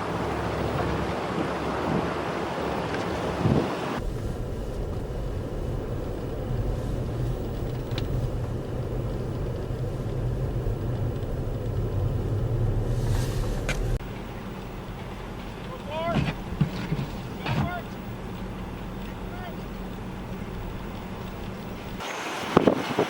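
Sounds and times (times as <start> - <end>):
vehicle engine droning: 0.0 - 22.8
wind noise rushing: 3.1 - 14.0.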